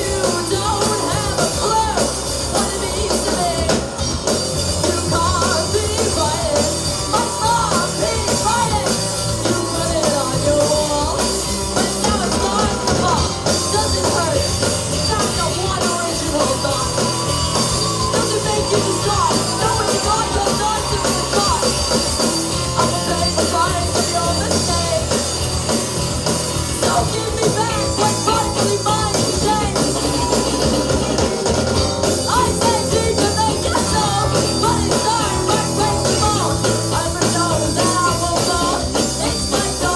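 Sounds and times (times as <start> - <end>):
bass guitar: 0.0 - 39.9
drum kit: 0.0 - 39.9
electric guitar: 0.0 - 39.9
person singing through pa: 0.0 - 39.9.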